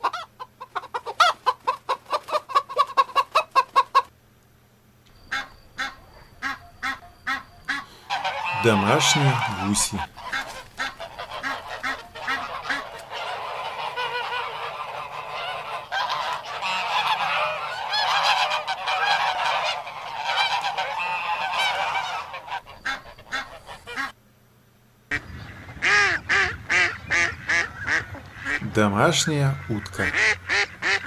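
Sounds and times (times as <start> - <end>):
geese honking: 5.2 - 24.2, 25.1 - 31.0.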